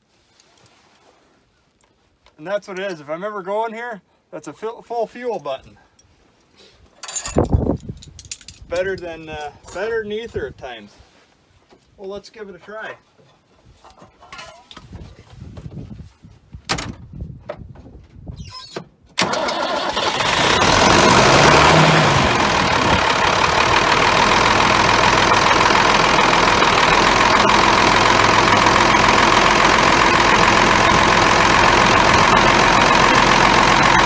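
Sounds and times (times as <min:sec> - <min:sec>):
diesel engine starting and idling: 0:19.2 - 0:34.0.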